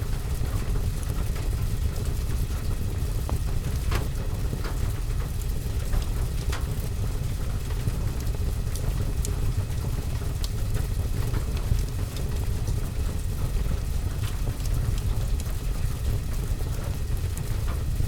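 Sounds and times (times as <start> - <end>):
rain on a roof and window: 0.0 - 18.0
wood fire crackling and popping: 7.7 - 18.0.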